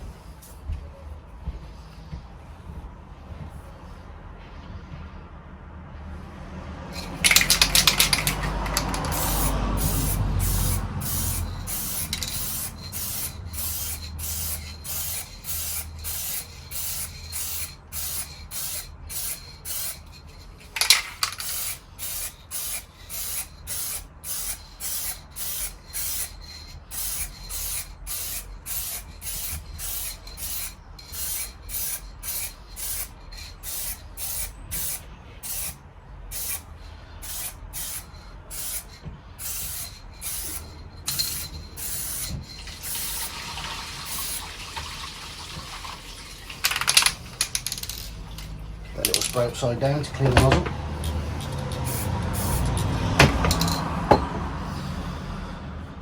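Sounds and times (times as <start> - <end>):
aerosol spray can hissing: 7.0 - 44.5, 51.0 - 53.8.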